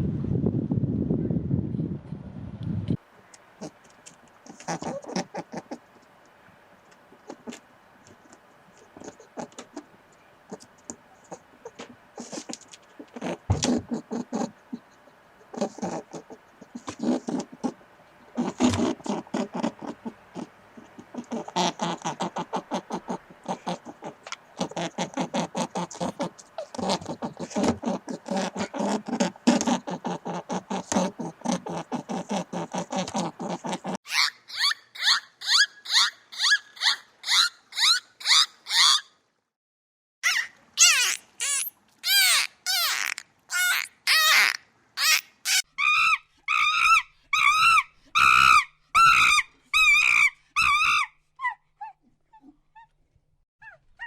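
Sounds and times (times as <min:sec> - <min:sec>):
high-pitched animal chirping: 0:34.1 - 0:39.1, 0:40.2 - 0:51.6.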